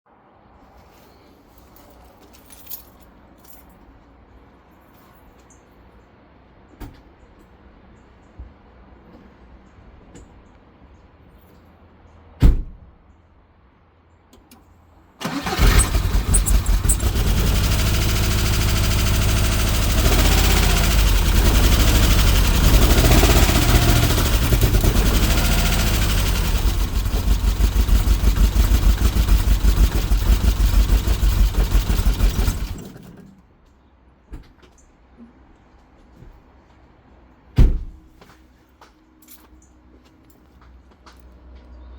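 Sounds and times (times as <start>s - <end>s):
car engine cranking and running rough: 15.2s - 33.3s.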